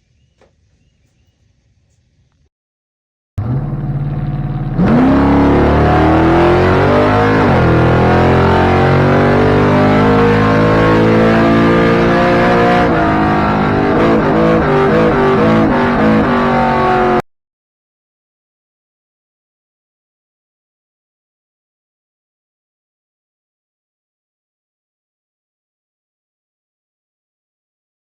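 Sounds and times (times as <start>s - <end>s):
truck engine revving hard: 3.4s - 17.2s.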